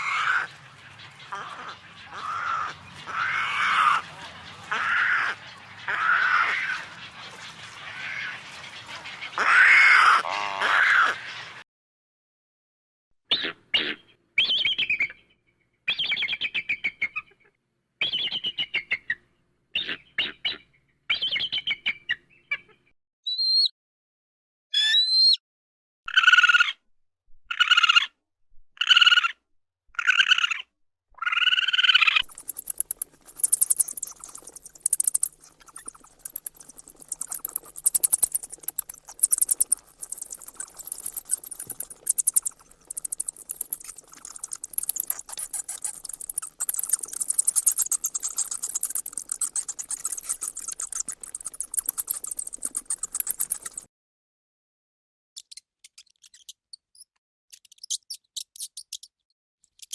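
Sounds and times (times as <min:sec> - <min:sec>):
animal calling: 0:01.2 - 0:11.2, 0:31.3 - 0:53.9
rapid high-pitched clicking: 0:32.2 - 0:53.9.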